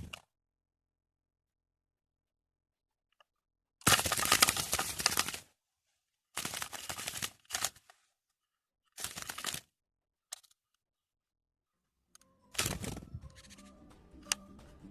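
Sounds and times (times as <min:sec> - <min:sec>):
music: 0:11.7 - 0:14.9.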